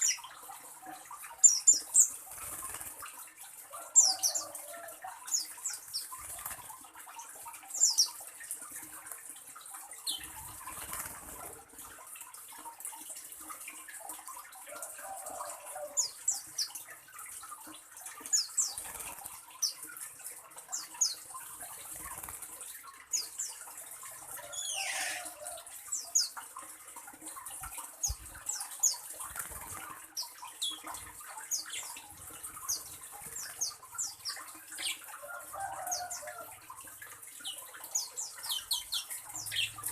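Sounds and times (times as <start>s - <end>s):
birds chirping: 18.2s - 26.4s, 37.2s - 39.9s.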